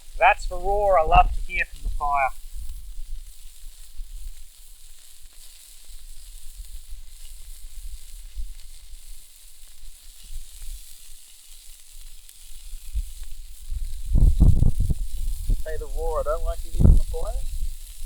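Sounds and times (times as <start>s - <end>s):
sausages sizzling: 0.0s - 18.0s
wind rumble on microphone: 12.8s - 18.0s.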